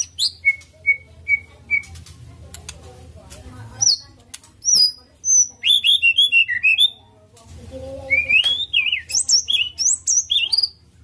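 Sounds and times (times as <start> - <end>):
songbird singing whistled notes: 0.0 - 2.0, 4.6 - 7.0, 8.0 - 10.8.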